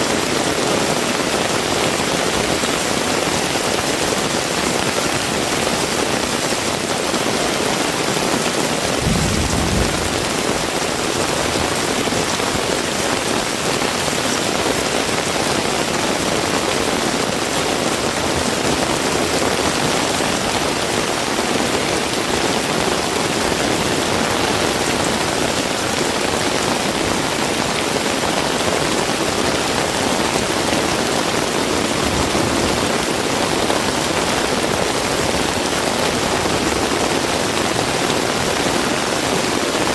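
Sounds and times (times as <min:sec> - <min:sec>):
heavy rain falling: 0:00.0 - 0:39.9
low rumble: 0:09.0 - 0:11.7.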